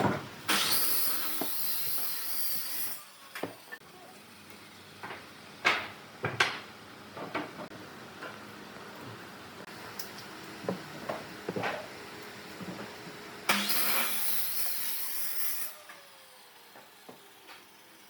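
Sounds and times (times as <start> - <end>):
loud hiss: 0.5 - 3.8.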